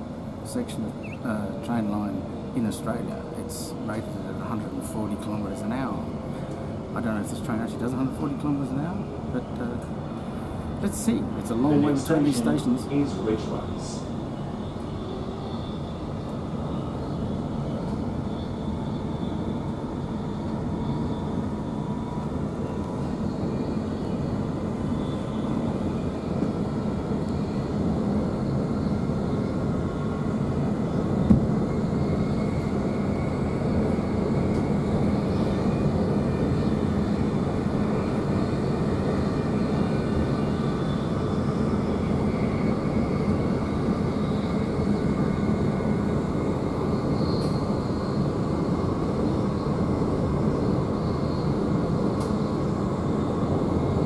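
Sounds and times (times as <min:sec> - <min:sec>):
train wheels rumbling on rail: 0:13.1 - 0:54.0.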